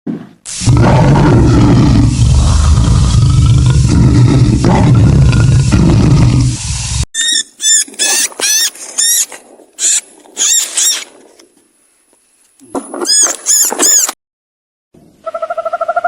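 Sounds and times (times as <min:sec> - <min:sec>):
animal squeaking calls: 0:07.2 - 0:11.0, 0:15.2 - 0:16.0.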